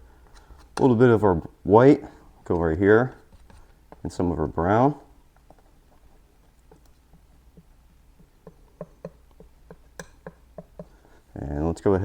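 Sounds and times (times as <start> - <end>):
painting knife tapping palette: 6.6 - 11.1.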